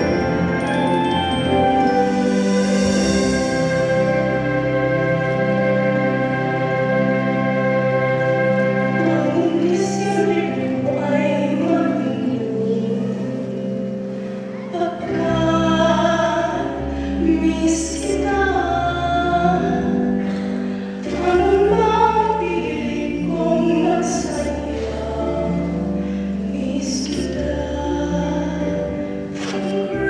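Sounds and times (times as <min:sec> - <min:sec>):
instrumental accompaniment: 0:00.0 - 0:30.0
choir singing slow song: 0:21.0 - 0:30.0.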